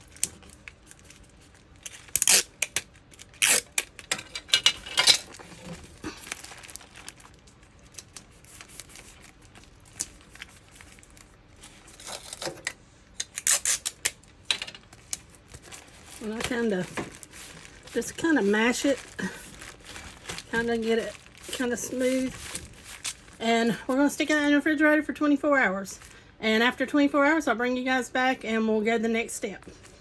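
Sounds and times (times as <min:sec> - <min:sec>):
paper crinkling and tearing: 0:00.0 - 0:04.2, 0:04.8 - 0:12.6, 0:14.9 - 0:23.4.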